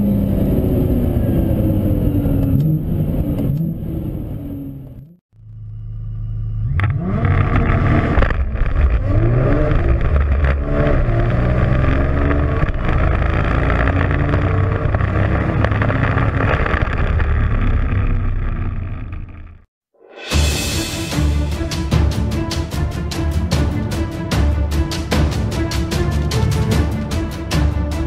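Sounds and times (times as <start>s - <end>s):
car engine accelerating hard: 6.4s - 19.2s
music: 19.9s - 28.0s.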